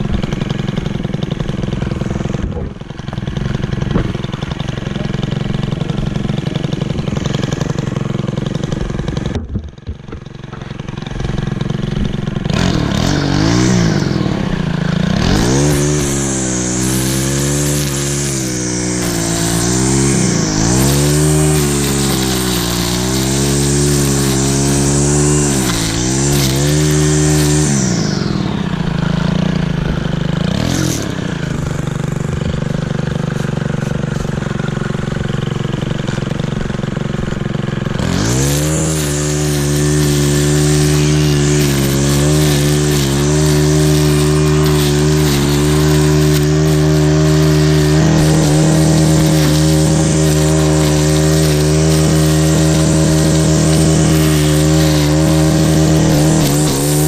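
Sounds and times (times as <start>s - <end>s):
small gas engine running: 0.0s - 57.0s.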